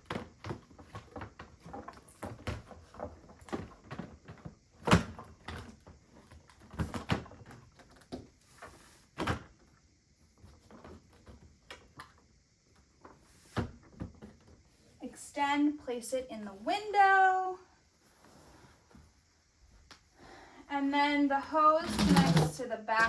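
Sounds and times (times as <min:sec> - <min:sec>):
plastic parts clicking and scraping: 0:21.8 - 0:23.0.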